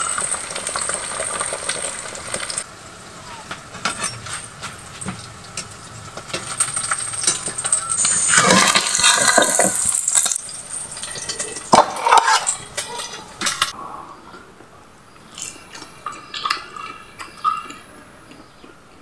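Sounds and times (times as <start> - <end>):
omelette sizzling in hot oil: 0.0 - 12.8.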